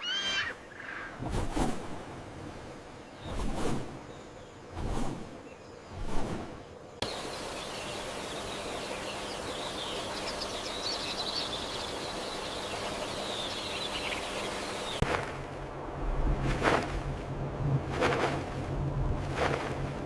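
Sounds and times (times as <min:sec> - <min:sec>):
steady hiss: 0:06.8 - 0:15.0
bird chirps: 0:07.0 - 0:15.0.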